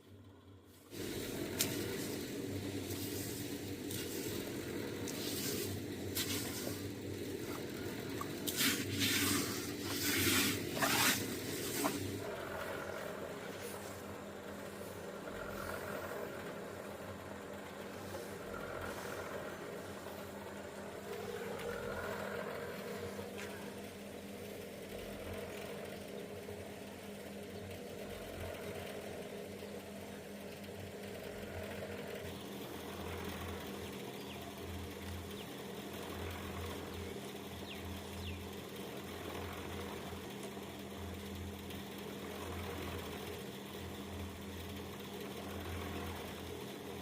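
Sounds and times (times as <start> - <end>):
engine humming steadily: 0.0 - 47.0
pulsing low throb: 1.0 - 38.6.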